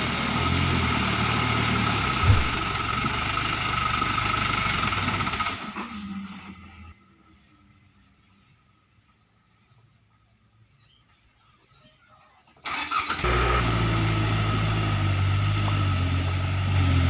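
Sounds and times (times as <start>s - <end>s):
truck engine running: 0.0s - 7.0s, 12.7s - 17.0s.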